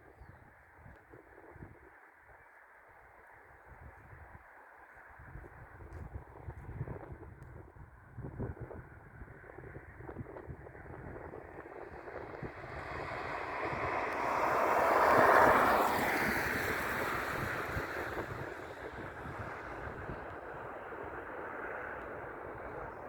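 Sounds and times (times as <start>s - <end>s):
jet airliner passing: 10.2s - 23.0s.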